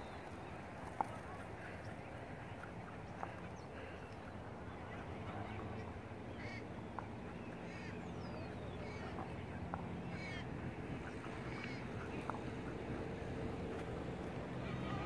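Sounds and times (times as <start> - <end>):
birds calling: 0.0 - 15.0
low background rush: 0.0 - 15.0.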